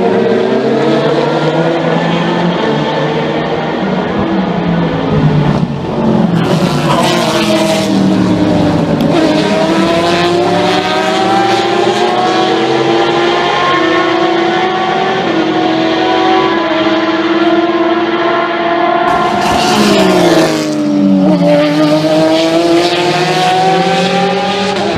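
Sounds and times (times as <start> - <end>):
race car engine accelerating: 0.0 - 24.9.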